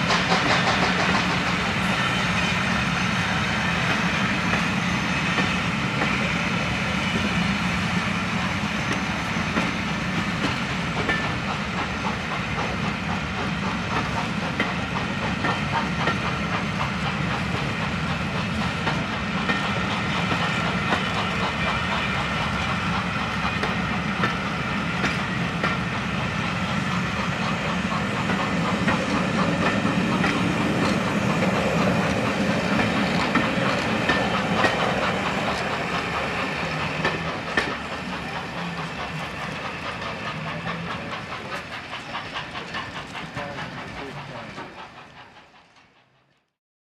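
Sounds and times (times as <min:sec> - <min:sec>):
steady steam hiss: 0:00.0 - 0:46.3
steam train rolling past: 0:00.0 - 0:46.6
wheels clicking over rail joints: 0:27.3 - 0:46.4.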